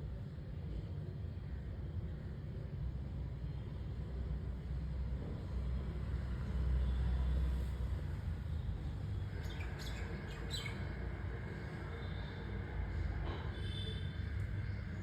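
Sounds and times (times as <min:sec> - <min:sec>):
bird chirps: 0:09.4 - 0:10.8.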